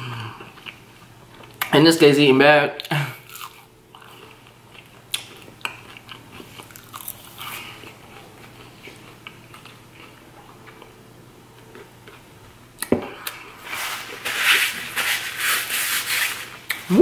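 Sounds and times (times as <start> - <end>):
person chewing: 0.0 - 1.7, 2.8 - 11.0.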